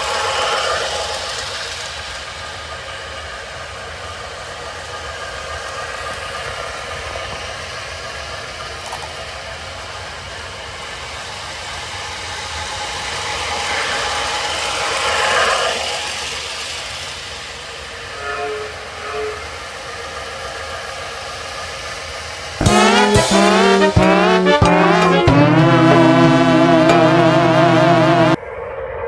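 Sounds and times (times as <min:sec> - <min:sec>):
toy train motor whir and rattle: 0:00.0 - 0:22.5.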